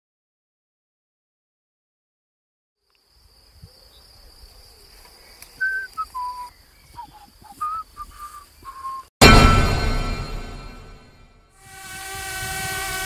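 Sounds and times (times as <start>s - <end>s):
bird whistling short notes: 5.6s - 9.1s.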